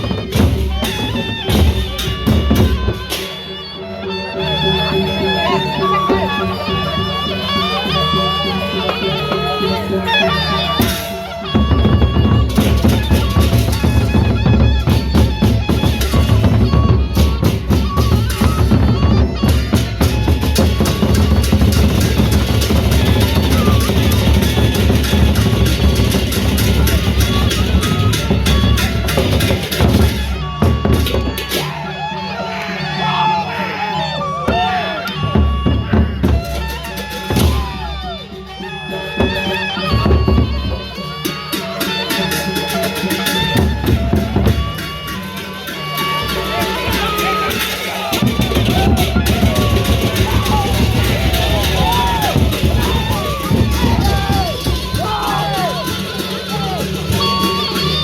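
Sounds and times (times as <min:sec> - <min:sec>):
high held melody: 0:00.0 - 0:58.0
fast drum beat: 0:11.5 - 0:31.4, 0:46.1 - 0:58.0.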